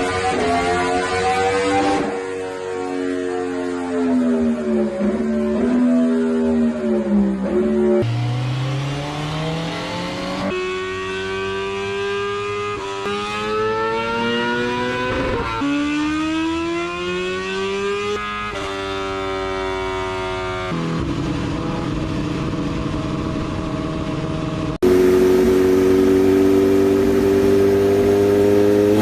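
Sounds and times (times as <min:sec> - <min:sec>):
motorcycle engine revving: 0:00.0 - 0:02.9, 0:04.8 - 0:29.0.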